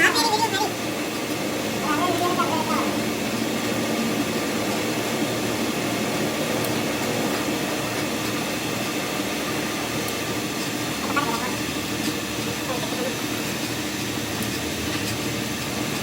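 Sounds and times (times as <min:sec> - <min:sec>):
machine drone: 0:00.0 - 0:16.0.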